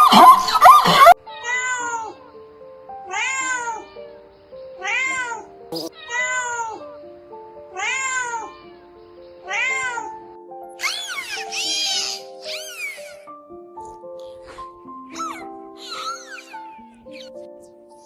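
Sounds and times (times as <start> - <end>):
simple background tune: 0.0 - 18.0
cat meowing: 3.1 - 4.2, 4.8 - 6.9, 7.7 - 8.8, 9.4 - 10.2.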